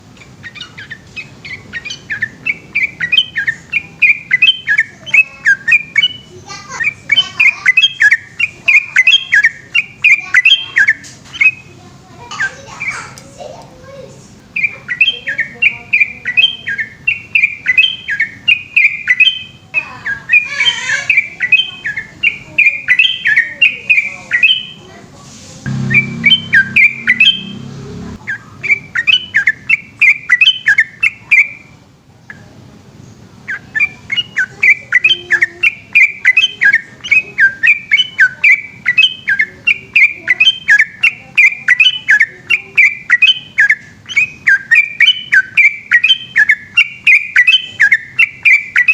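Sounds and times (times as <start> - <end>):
bulbul singing bubbly chirps: 25.7 - 27.7.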